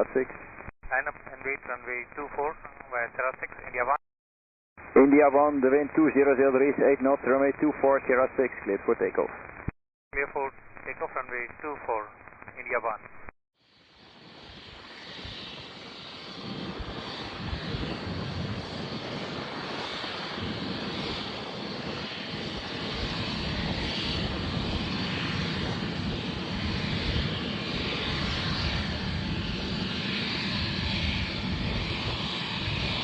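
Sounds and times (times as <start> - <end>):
jet engine roar: 13.7 - 33.0.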